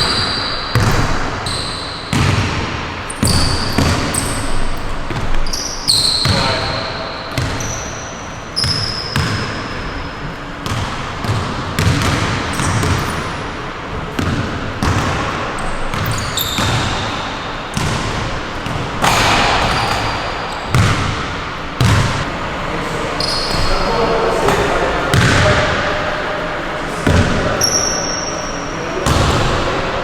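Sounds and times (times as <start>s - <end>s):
shoe squeaks: 0.0s - 2.2s, 3.0s - 10.2s, 15.6s - 17.6s, 19.7s - 20.8s, 23.1s - 24.0s, 27.6s - 28.8s
basketball bouncing: 0.0s - 5.6s, 7.3s - 8.0s, 8.6s - 9.8s, 10.6s - 13.3s, 14.0s - 22.3s, 25.1s - 25.7s, 27.0s - 27.4s, 29.0s - 29.6s.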